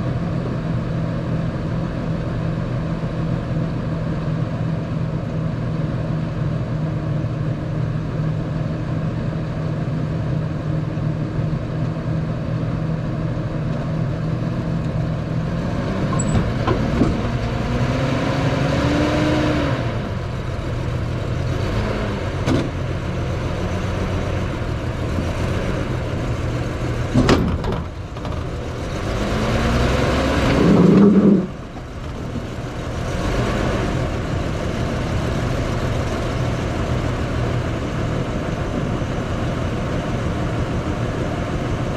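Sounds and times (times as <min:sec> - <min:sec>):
vehicle engine revving: 0:15.3 - 0:27.3, 0:28.1 - 0:37.9.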